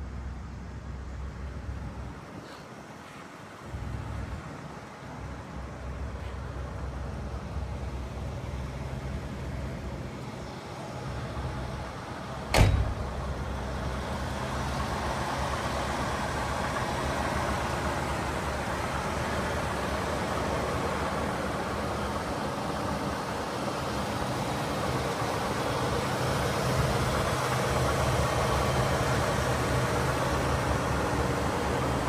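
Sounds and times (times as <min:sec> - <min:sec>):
car engine humming: 0:03.8 - 0:32.0
sharp thump: 0:12.5 - 0:13.7.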